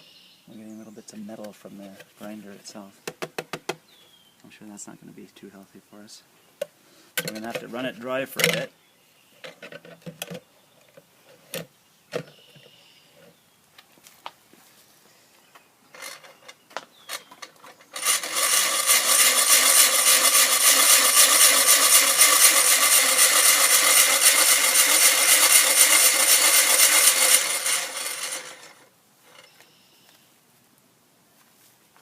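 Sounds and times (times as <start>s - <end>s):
grinder harsh grinding: 17.9s - 28.9s.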